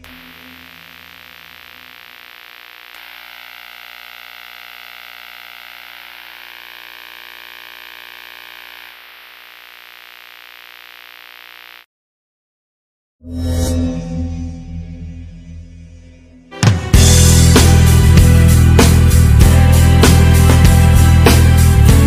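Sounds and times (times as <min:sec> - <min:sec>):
glitchy electronic static hiss: 0:00.0 - 0:11.9
thin high whine: 0:00.0 - 0:11.9.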